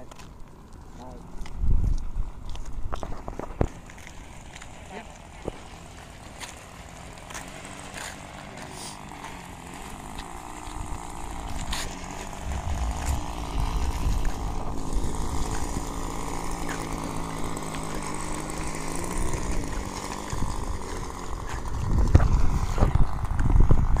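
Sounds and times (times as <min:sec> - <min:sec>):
model plane engine running: 0:03.0 - 0:24.0
low rumbling thumps: 0:12.4 - 0:16.0.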